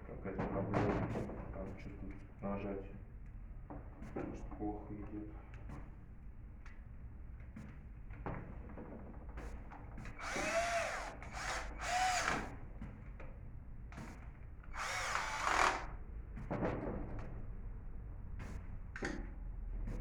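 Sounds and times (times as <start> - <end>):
electric drill whirring: 10.2 - 12.6, 14.7 - 15.9.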